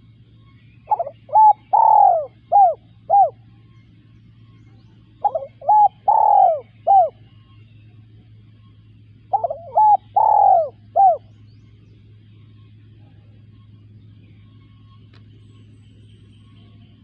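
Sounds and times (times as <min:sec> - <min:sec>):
dove cooing: 0:00.8 - 0:03.4, 0:05.2 - 0:07.2, 0:09.2 - 0:11.3.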